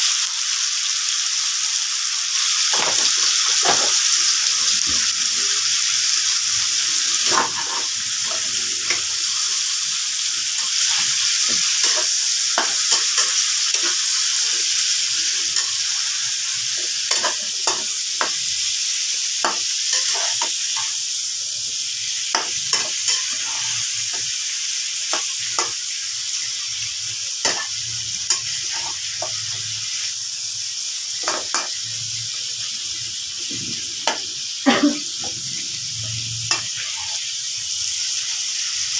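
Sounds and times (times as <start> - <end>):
food sizzling in oil: 0.0 - 38.9
utensil scraping pan: 7.2 - 9.1.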